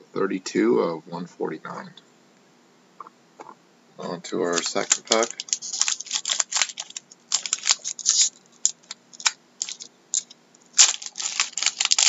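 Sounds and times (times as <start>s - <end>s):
cards rustling and clicking: 4.4s - 12.0s
foil wrapper tearing and crinkling: 4.4s - 12.0s.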